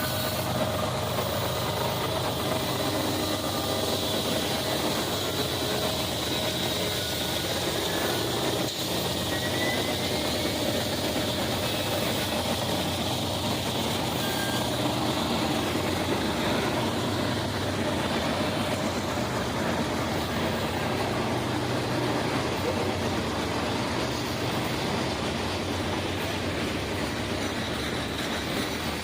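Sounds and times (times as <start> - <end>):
diesel locomotive engine drone: 0.0 - 29.0
train rumbling: 0.0 - 29.0.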